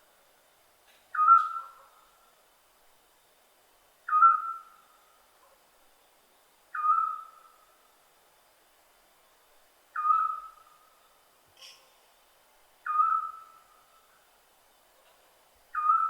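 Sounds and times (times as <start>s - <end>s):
owl whistled call: 1.1s - 1.8s, 4.1s - 4.8s, 6.7s - 7.6s, 10.0s - 10.9s, 12.8s - 13.7s, 15.8s - 16.0s.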